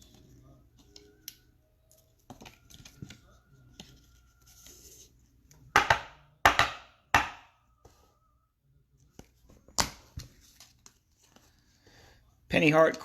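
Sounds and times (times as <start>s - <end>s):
trading cards rustling and slapping: 9.1s - 11.6s.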